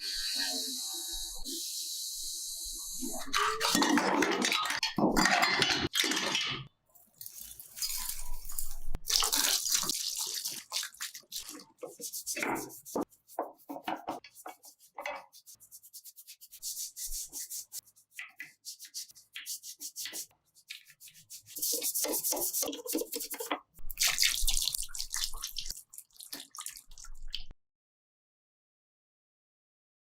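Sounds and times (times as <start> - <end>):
scrubbing and scraping by hand: 7.5 - 25.8.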